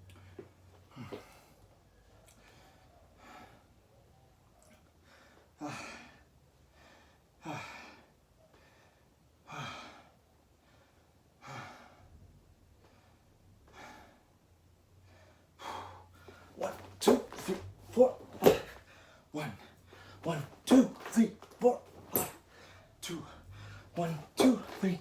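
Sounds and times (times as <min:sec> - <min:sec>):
person breathing hard: 0:05.0 - 0:12.2, 0:12.8 - 0:14.4, 0:15.0 - 0:21.3, 0:22.3 - 0:25.0.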